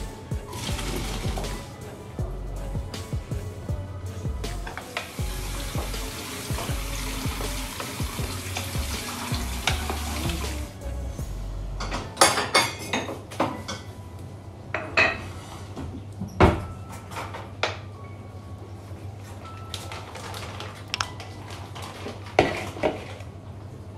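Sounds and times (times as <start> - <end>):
water running from a tap: 0.5 - 1.6, 5.0 - 10.8
dishes and cutlery clinking: 11.8 - 14.0, 14.7 - 17.9.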